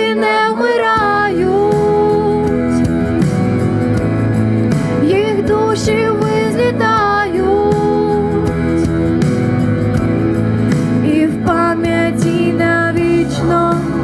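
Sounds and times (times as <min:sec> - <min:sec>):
woman singing: 0:00.0 - 0:03.3, 0:05.0 - 0:09.0, 0:11.0 - 0:14.0
instrumental backing music: 0:00.0 - 0:14.0.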